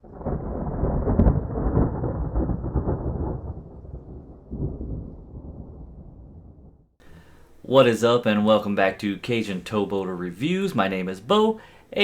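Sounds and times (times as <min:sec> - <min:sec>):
thunder crack and rumble: 0:00.0 - 0:07.0.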